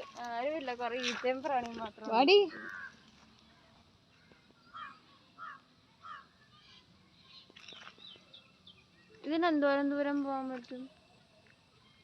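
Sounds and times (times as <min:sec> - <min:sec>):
bird calling faintly: 0:00.9 - 0:09.4.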